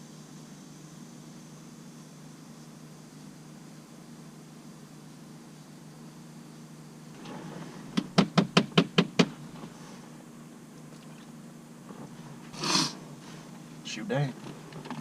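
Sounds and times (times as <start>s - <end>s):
knocks on a hard surface: 8.0s - 9.4s.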